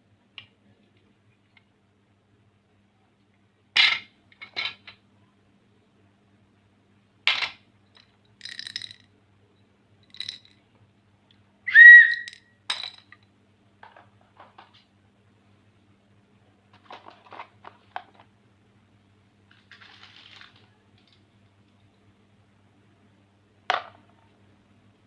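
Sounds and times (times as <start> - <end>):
wooden pencils clicking together: 8.0 - 9.1, 10.1 - 10.6, 12.0 - 13.2
high whistle-like squeak: 11.7 - 12.4.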